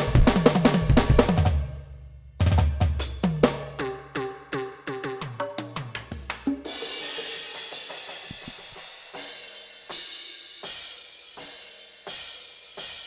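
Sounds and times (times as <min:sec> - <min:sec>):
electronic drum fill on toms: 0:00.0 - 0:01.7, 0:02.4 - 0:09.3
slow drum beat: 0:00.0 - 0:13.0
cymbal crash: 0:03.0 - 0:13.0.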